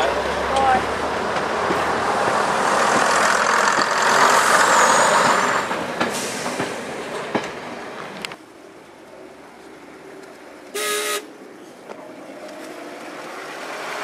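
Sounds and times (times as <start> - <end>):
diesel train passing: 0.0 - 14.0
sharp clicks of wheels: 0.5 - 8.4.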